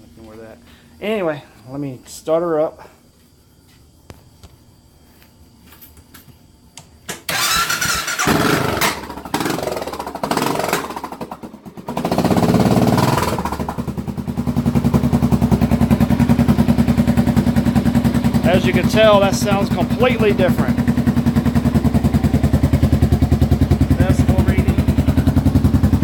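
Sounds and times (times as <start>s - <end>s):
motorcycle engine starting and idling: 7.1s - 26.0s.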